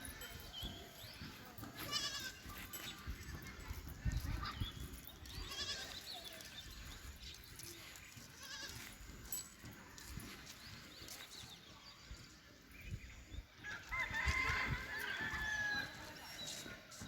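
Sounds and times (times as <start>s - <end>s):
goats bleating: 1.8s - 2.5s, 5.4s - 6.0s.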